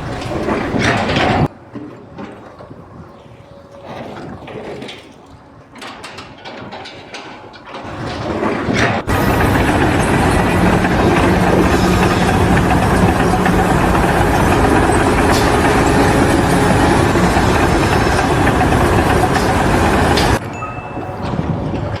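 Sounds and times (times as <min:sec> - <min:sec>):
heavy machinery engine running: 0:07.9 - 0:22.0.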